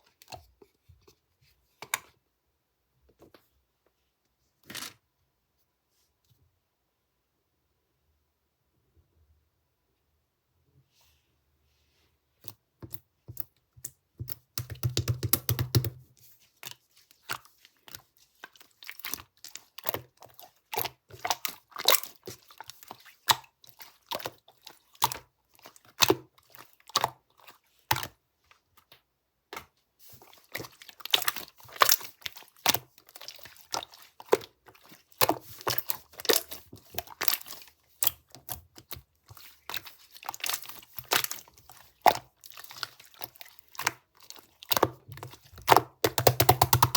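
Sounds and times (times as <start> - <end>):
slime squished by hand: 30.2 - 46.9.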